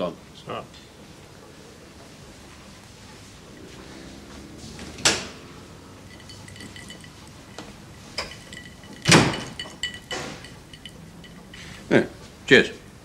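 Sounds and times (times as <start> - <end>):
faint high ringing: 3.2 - 12.3
glass clinks: 5.8 - 11.9.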